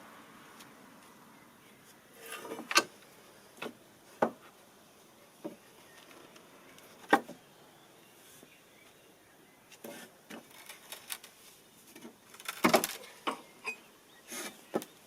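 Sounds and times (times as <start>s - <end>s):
scraping rustle: 1.8s - 2.8s, 9.7s - 13.2s
wood knocking and clattering: 12.0s - 13.5s.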